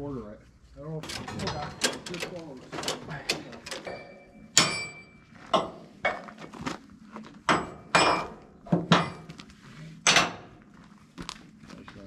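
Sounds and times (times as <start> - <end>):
sharp metallic knocks and clanks: 1.0 - 6.2, 7.5 - 9.4, 10.0 - 10.6.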